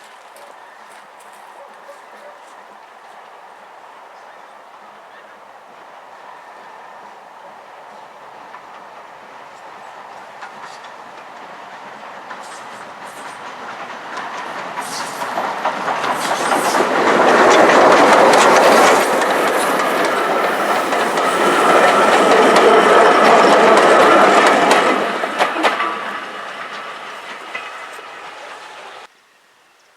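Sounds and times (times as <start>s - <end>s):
train wheels clicking over joints: 8.2s - 29.1s.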